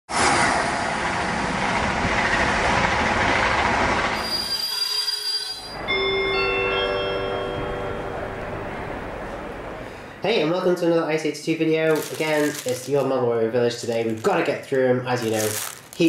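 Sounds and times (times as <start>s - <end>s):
train passing: 0.1s - 11.1s.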